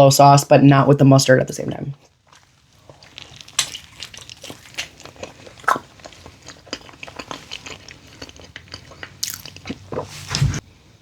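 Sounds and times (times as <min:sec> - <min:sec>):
crunchy snack chewing: 0:02.0 - 0:10.4.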